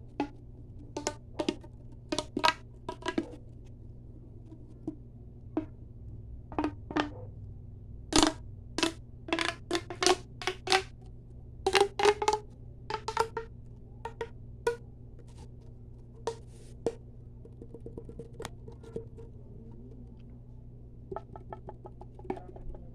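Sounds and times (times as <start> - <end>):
tapping on hard object: 0.1 - 3.4, 6.5 - 7.2, 8.2 - 10.9, 11.7 - 13.5, 16.2 - 19.3, 21.1 - 22.9.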